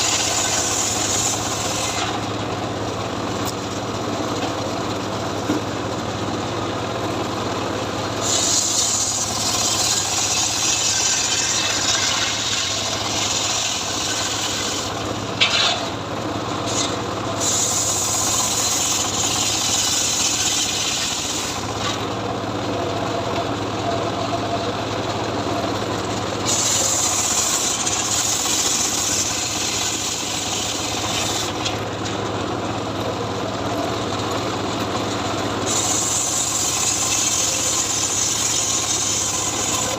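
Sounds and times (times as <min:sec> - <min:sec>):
saw rasping through wood: 0:00.0 - 0:02.3, 0:08.2 - 0:15.9, 0:16.6 - 0:22.0, 0:26.2 - 0:31.8, 0:35.6 - 0:39.9
engine hum: 0:00.0 - 0:39.9.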